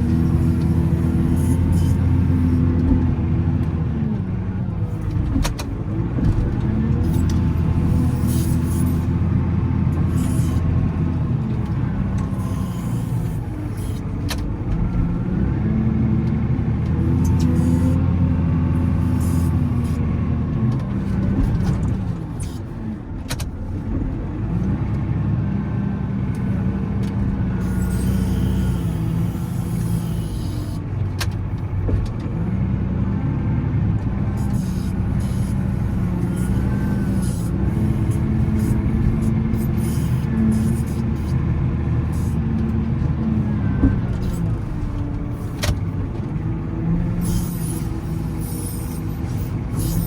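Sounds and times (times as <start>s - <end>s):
diesel engine revving under load: 0.0s - 50.0s.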